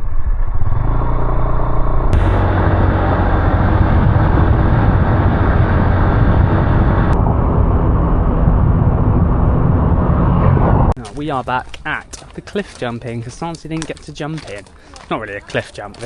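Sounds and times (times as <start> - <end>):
motorbike engine and wind rumble: 0.0 - 11.0
hissing noise: 2.1 - 5.9.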